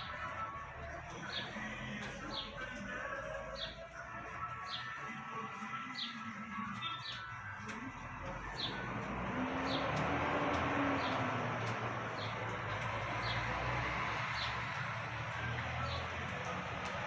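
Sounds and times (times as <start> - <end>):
road traffic: 0.0 - 17.0
vehicle passing: 7.7 - 17.0.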